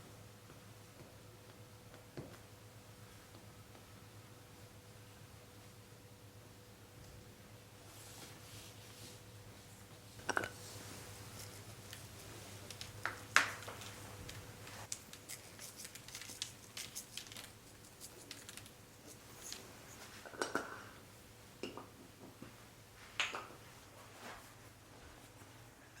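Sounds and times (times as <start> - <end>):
small objects clicking and scraping: 11.3 - 20.6.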